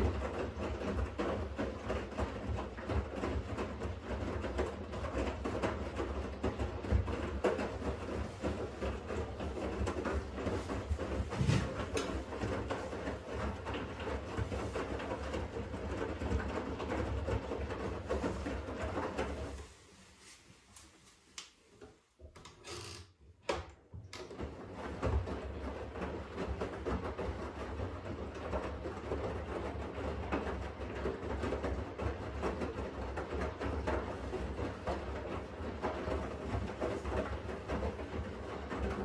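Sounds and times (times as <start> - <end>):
washing machine drum rumbling: 0.1 - 19.6.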